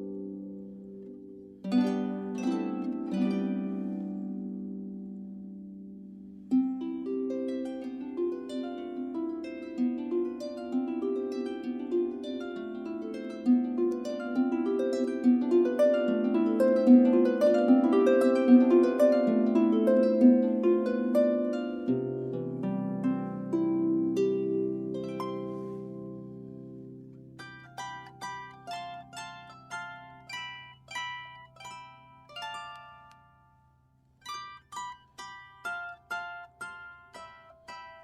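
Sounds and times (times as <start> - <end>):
harp playing flowing melody: 0.0 - 38.0.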